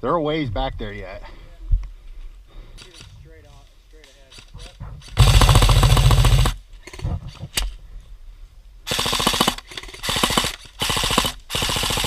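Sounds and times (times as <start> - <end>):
airsoft gun firing bursts: 5.1 - 7.1, 8.9 - 12.0.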